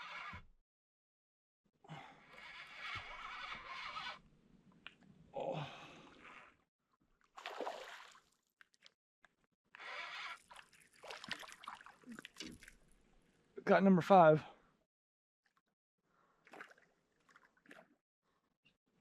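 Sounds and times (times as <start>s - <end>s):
water splashing from thrashing fish: 7.4s - 8.3s, 10.4s - 12.8s.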